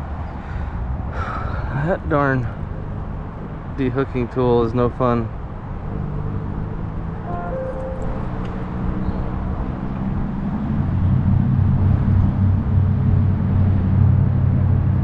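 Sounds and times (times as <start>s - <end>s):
heavy engine humming: 7.2s - 9.0s.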